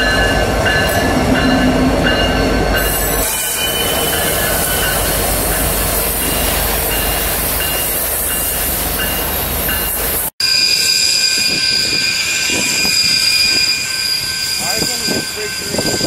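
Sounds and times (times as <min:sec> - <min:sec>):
diesel locomotive passing: 0:00.0 - 0:16.0
high-pitched wheel squeal: 0:10.4 - 0:16.0
rumble of train wheels on rail: 0:11.1 - 0:16.0.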